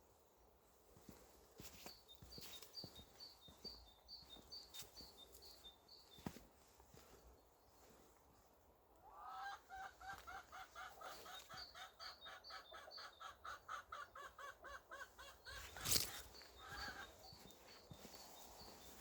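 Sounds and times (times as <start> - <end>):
chicken clucking: 9.1 - 17.6.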